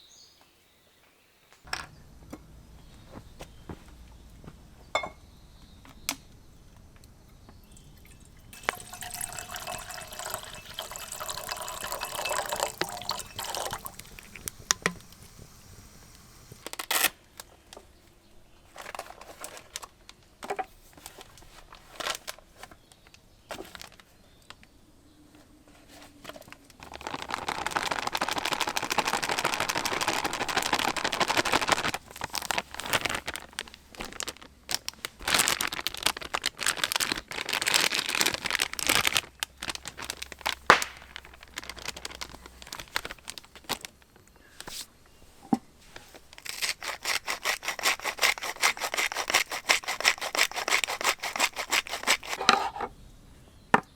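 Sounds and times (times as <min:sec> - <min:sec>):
liquid pouring into vessel: 0:07.7 - 0:16.6.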